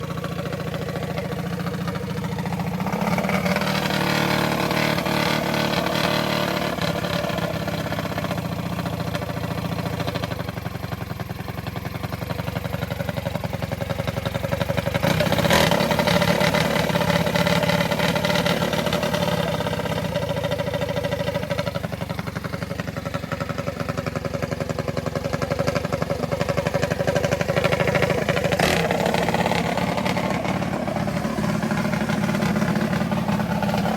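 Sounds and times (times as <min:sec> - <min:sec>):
small engine revving: 0:02.4 - 0:08.4, 0:14.8 - 0:22.4, 0:25.6 - 0:33.9.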